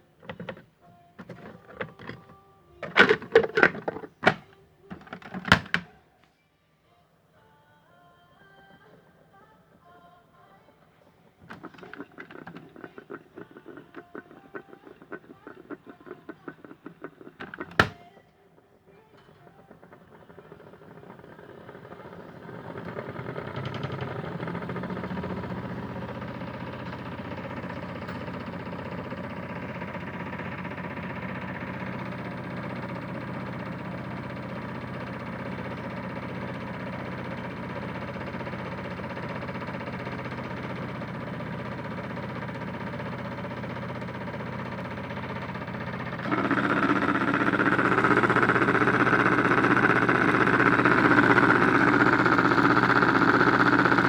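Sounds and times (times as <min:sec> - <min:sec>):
small electric motor humming: 0:19.0 - 0:54.0.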